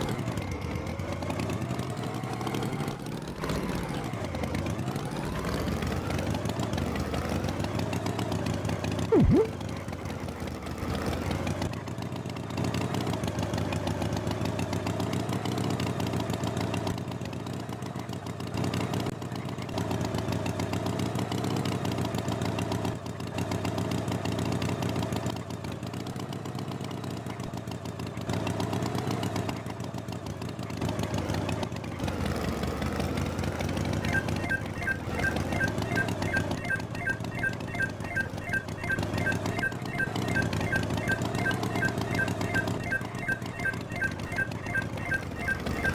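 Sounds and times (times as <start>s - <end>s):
tractor engine running: 0.0s - 45.9s
loud swooping tone: 9.1s - 9.5s.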